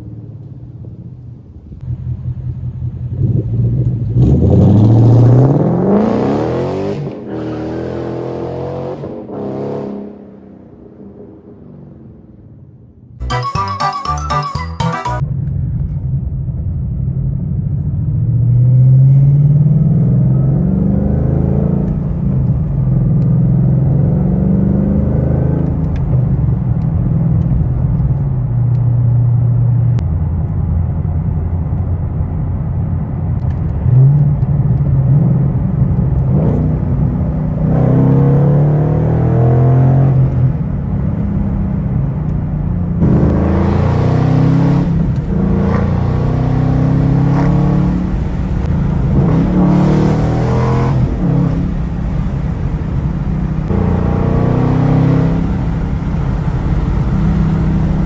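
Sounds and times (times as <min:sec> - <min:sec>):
car engine revving: 0:01.8 - 0:10.3, 0:18.3 - 0:30.1, 0:33.0 - 0:58.0.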